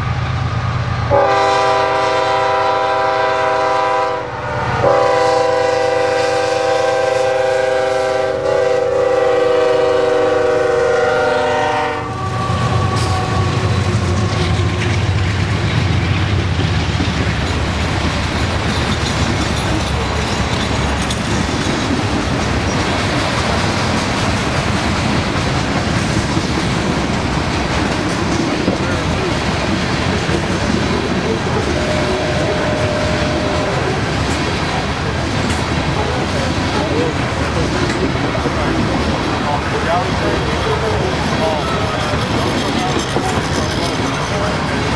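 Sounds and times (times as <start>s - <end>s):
train rumbling past: 0.0s - 44.9s
locomotive air horn: 1.1s - 13.9s, 31.6s - 34.0s
wheels clattering on rails: 12.3s - 44.9s.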